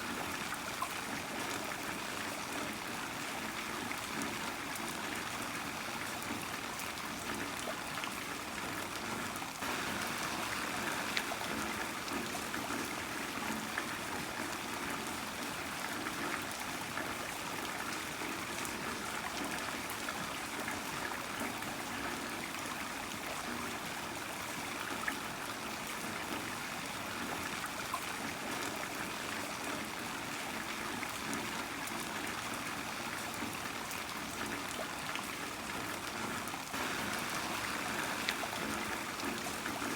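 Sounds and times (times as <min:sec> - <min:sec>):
heavy rain: 0:09.6 - 0:14.8, 0:36.7 - 0:39.9.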